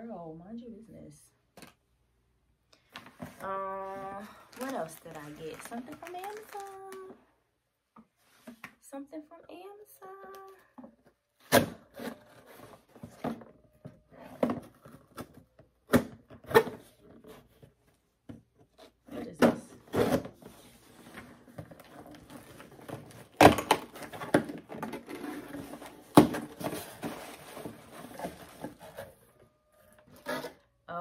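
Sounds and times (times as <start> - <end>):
packaging rustling: 3.0 - 7.2, 20.4 - 30.5.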